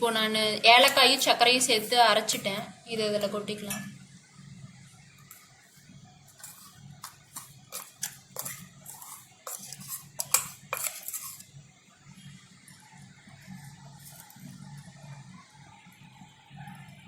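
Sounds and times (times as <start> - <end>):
faint low hum: 0.0 - 17.0
metal spoon clinking on steel vessels: 6.4 - 11.4.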